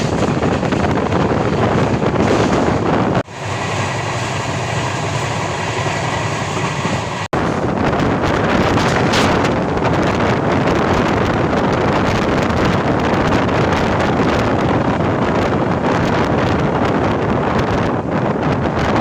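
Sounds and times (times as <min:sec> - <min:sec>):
train rushing at speed: 0:00.0 - 0:19.0
wind buffeting microphone: 0:00.0 - 0:19.0.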